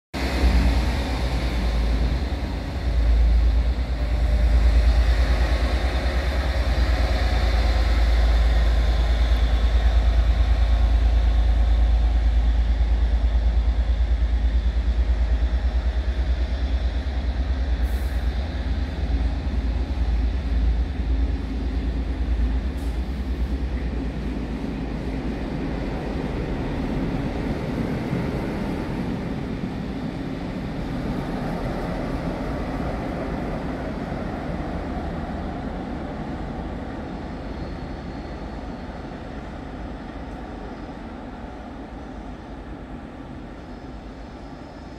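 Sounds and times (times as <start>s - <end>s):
train carriages rumbling on rails: 0.2s - 44.9s.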